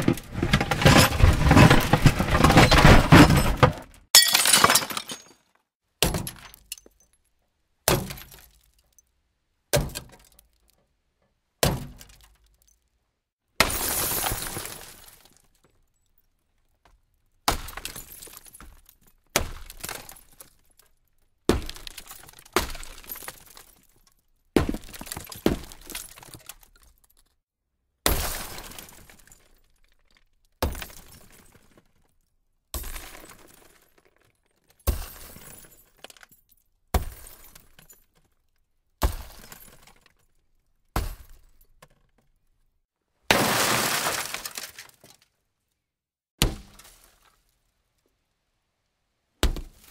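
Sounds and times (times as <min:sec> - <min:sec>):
glass smashing: 0:00.1 - 0:05.4, 0:13.6 - 0:15.3, 0:43.3 - 0:45.1.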